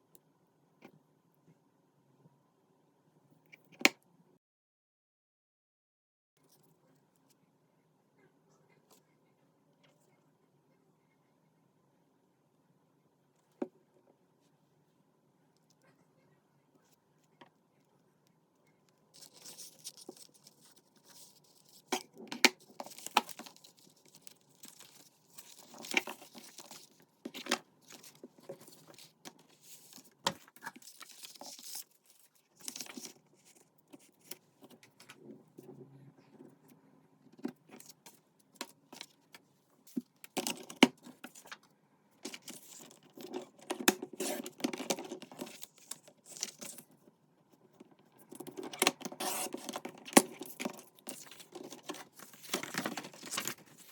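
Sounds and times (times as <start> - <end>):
paper rustling and crinkling: 19.2 - 35.2, 37.5 - 47.0, 48.1 - 53.9.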